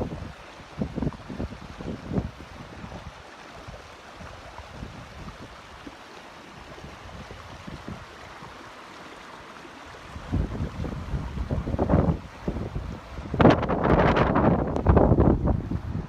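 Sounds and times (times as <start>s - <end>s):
wind rumbling on microphone: 0.0s - 6.0s, 6.6s - 8.7s, 9.9s - 16.0s
floodwater rushing: 0.0s - 16.0s.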